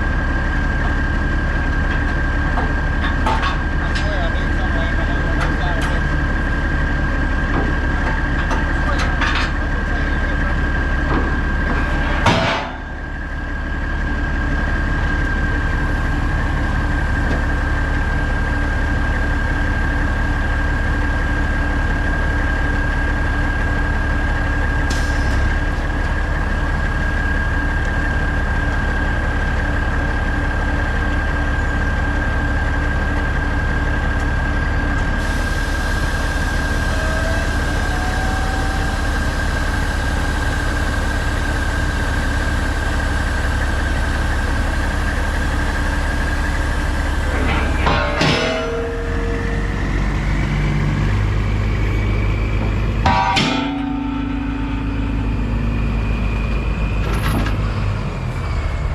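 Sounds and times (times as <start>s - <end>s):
diesel truck engine idling: 0.0s - 58.9s
high-pitched whine: 35.2s - 58.9s
sharp metallic knock: 53.0s - 55.5s.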